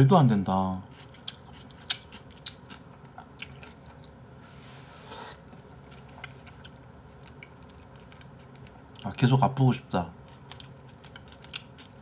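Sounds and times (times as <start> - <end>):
close chewing with mouth smacks: 0.9 - 4.2, 5.4 - 9.1, 10.2 - 12.0.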